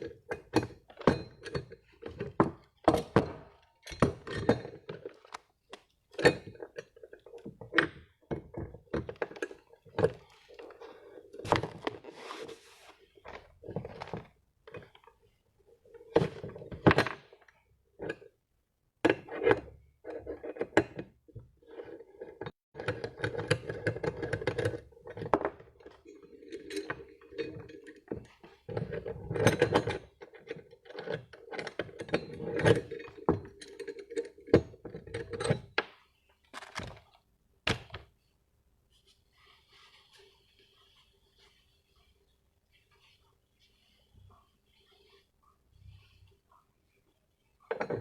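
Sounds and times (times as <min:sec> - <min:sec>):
metal tools knocking and clanking: 0:00.0 - 0:05.4, 0:22.8 - 0:36.0, 0:47.6 - 0:48.0
rattling clatter of metal parts: 0:00.0 - 0:05.4, 0:22.8 - 0:35.9.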